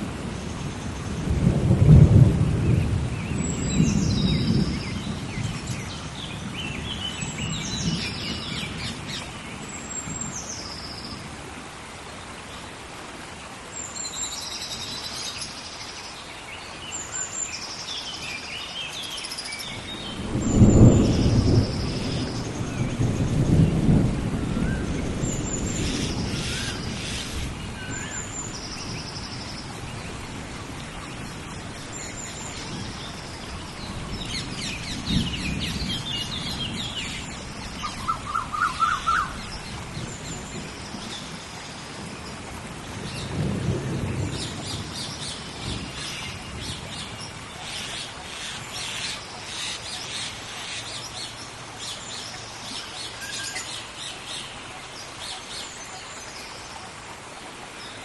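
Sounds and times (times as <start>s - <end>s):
thunder rumbling: 0.0s - 9.2s, 19.7s - 47.4s
steady rain: 0.0s - 58.0s
birds chirping and calling: 25.3s - 29.6s, 31.8s - 41.3s, 44.4s - 54.5s.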